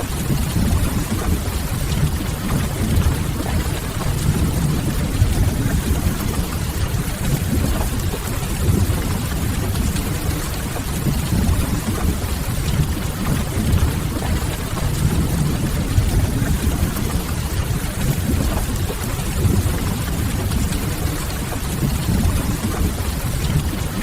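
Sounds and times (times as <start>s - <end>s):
steady rain: 0.0s - 24.0s
low rumble: 0.2s - 7.9s, 11.0s - 18.6s.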